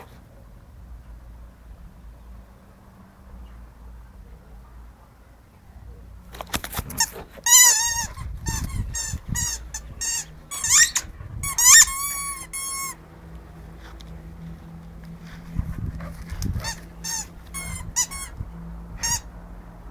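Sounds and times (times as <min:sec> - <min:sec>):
squeaky dog toy squeaking: 0:07.0 - 0:13.0, 0:16.6 - 0:19.3.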